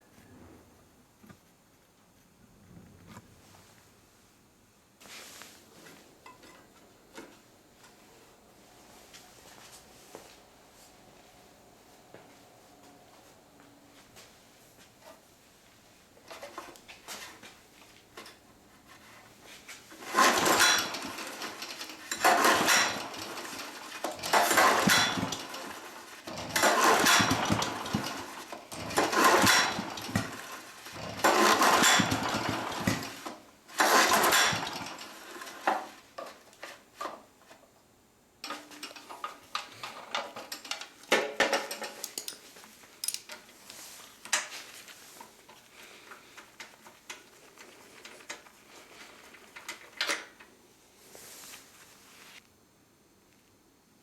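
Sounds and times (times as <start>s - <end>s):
small engine pull-start cranking: 19.9s - 36.0s.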